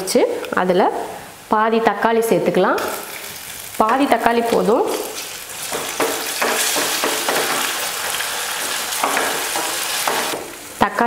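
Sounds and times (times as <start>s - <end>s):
onions sizzling in hot oil: 2.7s - 10.8s.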